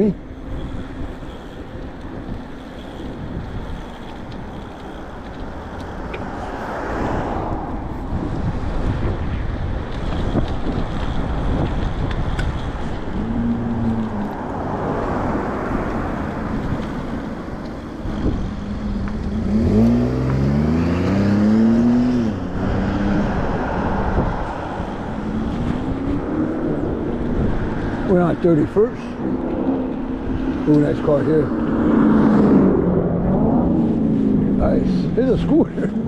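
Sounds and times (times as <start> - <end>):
road noise: 0.0 - 36.0
street traffic: 0.0 - 36.0
wind rumble: 0.0 - 36.0
car engine accelerating: 18.1 - 36.0.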